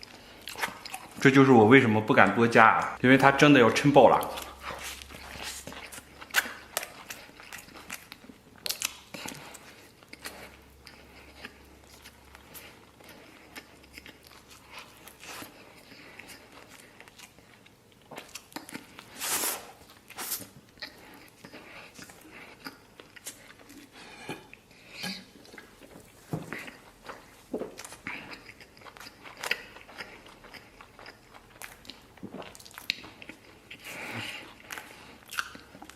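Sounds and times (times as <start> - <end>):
chewing sandwich: 0.0 - 1.4, 3.8 - 35.9
wet mouth clicks and crunches: 4.1 - 12.6, 26.6 - 35.9.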